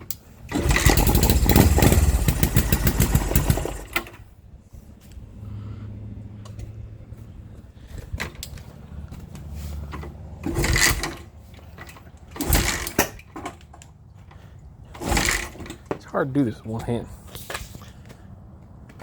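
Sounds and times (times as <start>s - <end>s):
motorcycle engine sputtering: 0.4s - 4.3s, 10.4s - 13.5s, 14.9s - 15.9s.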